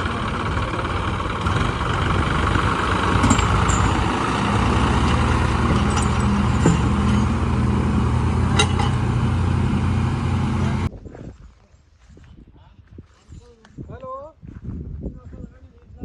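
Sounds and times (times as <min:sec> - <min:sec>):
tractor diesel engine under load: 0:00.0 - 0:10.9.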